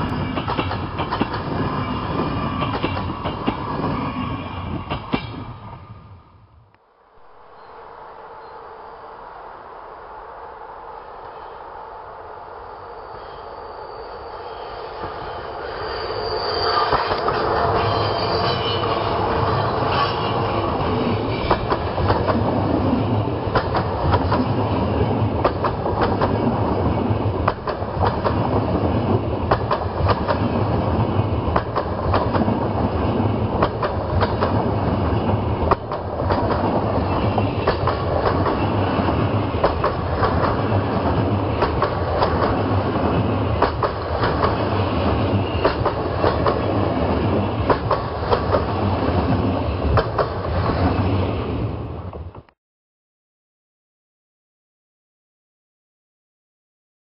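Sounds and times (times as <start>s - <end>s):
train low rumble: 0.0s - 52.5s
train wheels clacking on rail joints: 0.1s - 3.9s, 21.3s - 22.5s, 23.5s - 24.6s, 25.3s - 30.9s, 31.5s - 51.0s.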